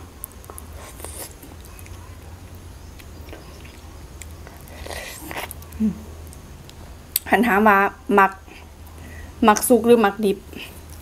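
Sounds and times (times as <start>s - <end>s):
wet chewing clicks: 0.2s - 7.3s.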